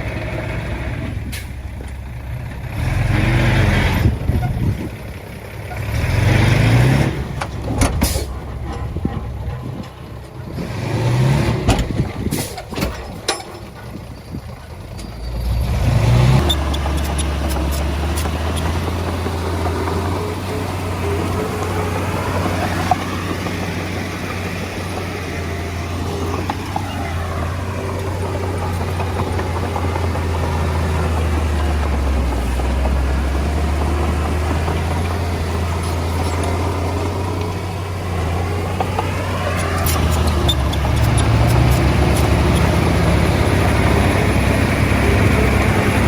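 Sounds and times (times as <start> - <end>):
diesel engine of heavy machine: 0.0 - 46.0
sharp metallic clanks: 11.5 - 14.2.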